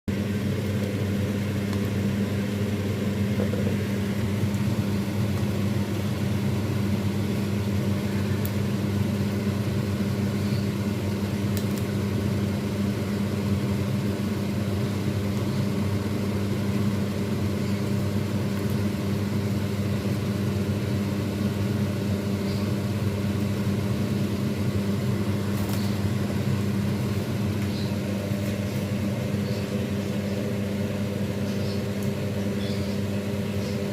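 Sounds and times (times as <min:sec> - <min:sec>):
low machine hum: 0:00.1 - 0:33.9.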